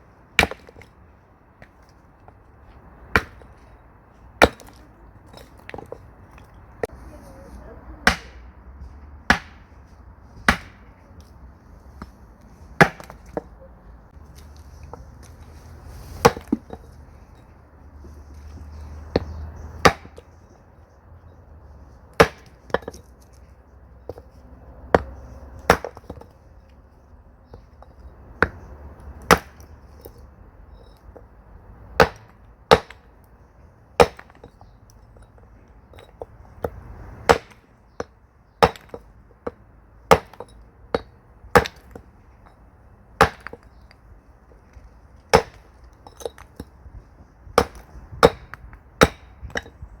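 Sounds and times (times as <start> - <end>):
axe splitting firewood: 0.4 - 0.9, 3.1 - 3.6, 4.4 - 6.0, 8.0 - 8.4, 9.3 - 9.8, 10.4 - 11.0, 12.7 - 13.5, 14.4 - 16.8, 18.7 - 20.3, 22.1 - 23.1, 24.9 - 26.4, 27.5 - 30.1, 31.9 - 33.2, 34.0 - 42.4, 43.2 - 44.0, 45.0 - 46.8, 47.4 - 49.9.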